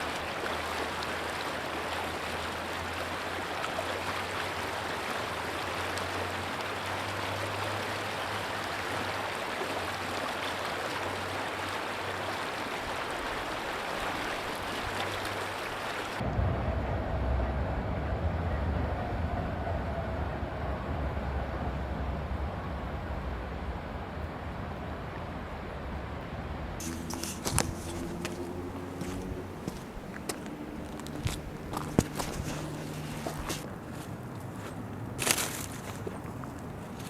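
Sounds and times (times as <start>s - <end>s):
flowing water rushing: 0.0s - 16.2s, 22.8s - 37.0s
loud low rumble: 16.2s - 24.2s
low hum: 16.2s - 35.2s.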